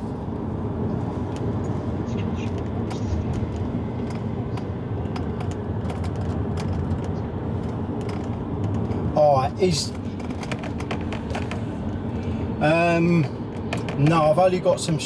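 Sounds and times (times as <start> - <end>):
car road and engine rumble: 0.0 - 15.0
light clicks and rattles: 2.4 - 12.0.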